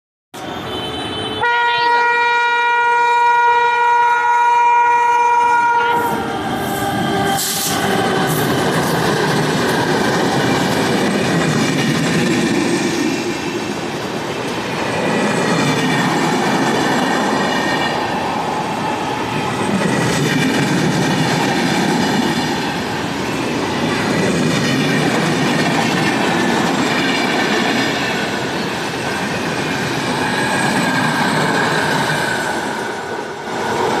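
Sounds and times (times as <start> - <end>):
train wheels rumbling on track: 5.8 - 34.0
high squealing wheels: 21.2 - 34.0.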